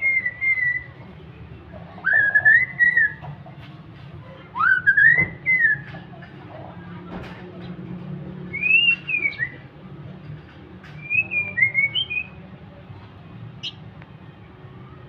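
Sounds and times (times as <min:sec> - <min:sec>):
bird singing whistled notes: 0:00.0 - 0:01.0, 0:02.0 - 0:03.2, 0:04.6 - 0:05.9, 0:08.5 - 0:09.6, 0:11.0 - 0:12.4.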